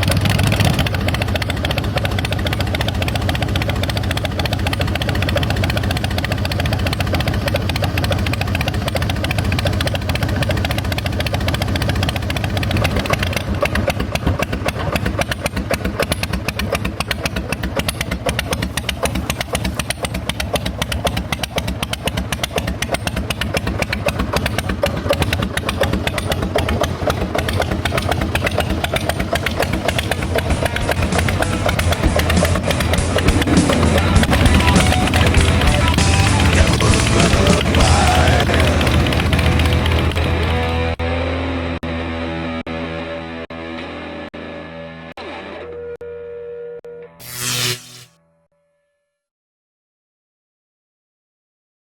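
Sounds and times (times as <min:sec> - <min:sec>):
motorcycle engine running: 0:00.0 - 0:41.2.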